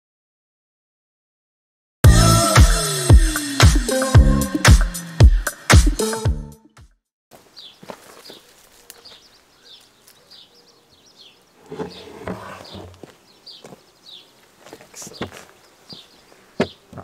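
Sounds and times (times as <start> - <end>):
bird chirping: 7.4 - 16.9
wooden hive lid scraping: 11.6 - 13.2.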